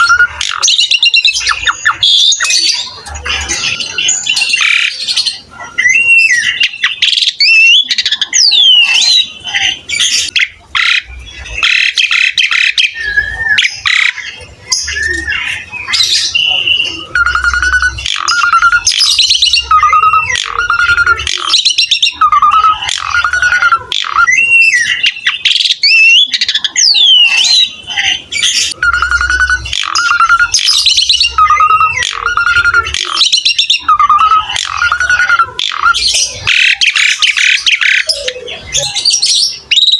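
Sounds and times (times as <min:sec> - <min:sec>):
starling singing and chattering: 0:00.0 - 0:39.9
repeated whistled notes: 0:15.9 - 0:25.2, 0:28.7 - 0:38.4.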